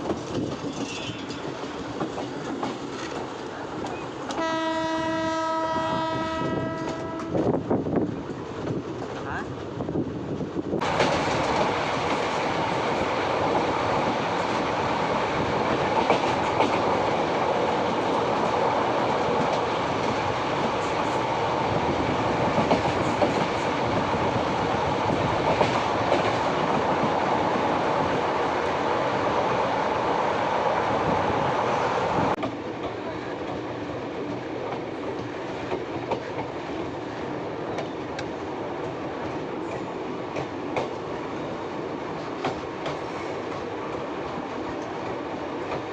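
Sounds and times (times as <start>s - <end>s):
train wheels clattering over rail joints: 0.0s - 4.5s, 10.3s - 28.7s, 32.3s - 36.9s, 37.7s - 41.1s, 42.1s - 45.9s.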